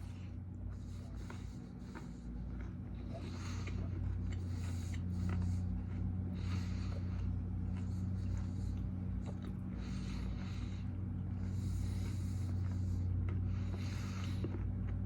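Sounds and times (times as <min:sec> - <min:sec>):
low electrical hum: 0:00.0 - 0:15.0
person chewing: 0:00.0 - 0:15.0
breathing out through nose: 0:03.0 - 0:14.8.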